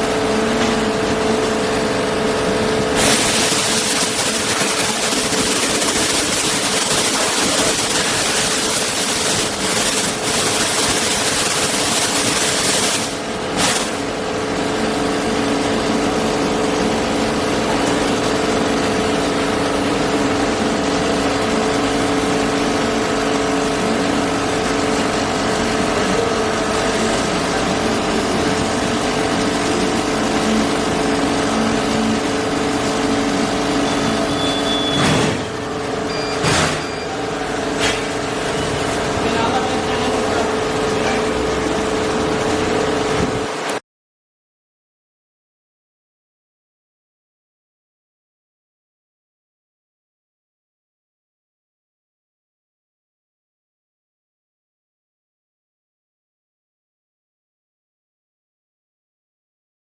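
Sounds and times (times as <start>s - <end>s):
machine motor humming and hissing: 0.0s - 43.7s.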